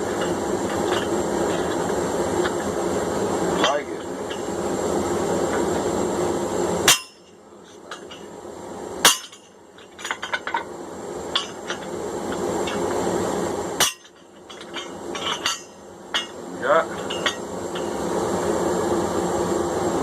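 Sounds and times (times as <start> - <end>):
hammer striking metal: 6.9 - 7.3, 9.0 - 9.5, 13.8 - 14.2.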